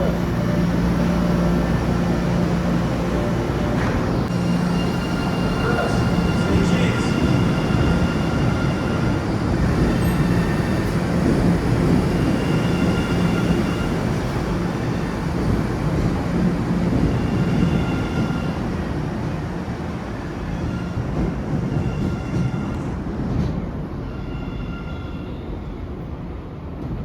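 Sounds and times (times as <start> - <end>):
subway train rumble: 0.0 - 27.0.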